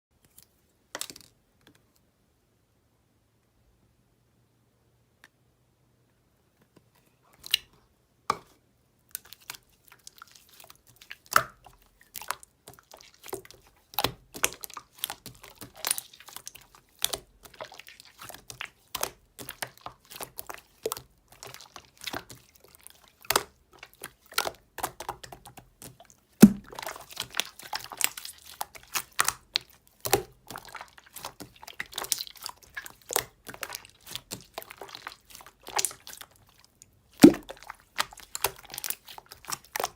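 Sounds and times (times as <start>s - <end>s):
slime squishing with sticky clicks: 9.1s - 39.9s.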